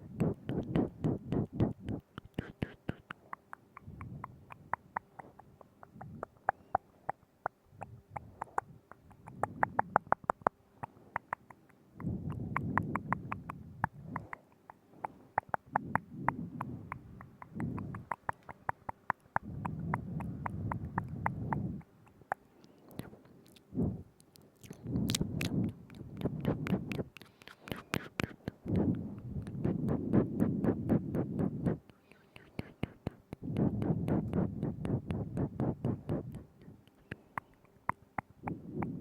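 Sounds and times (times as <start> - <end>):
low muffled mouth sounds: 0.0 - 39.0
wet mouth clicks and smacks: 0.0 - 39.0.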